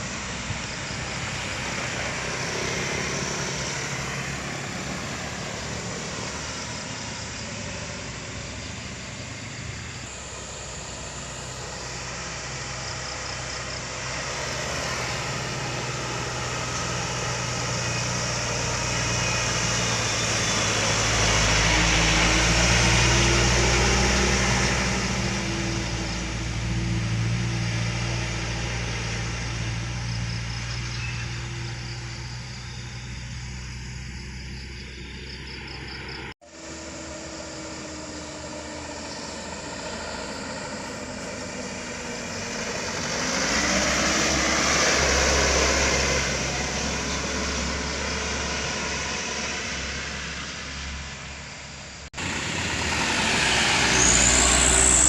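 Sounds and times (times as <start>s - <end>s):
truck engine passing: 0.0s - 55.0s.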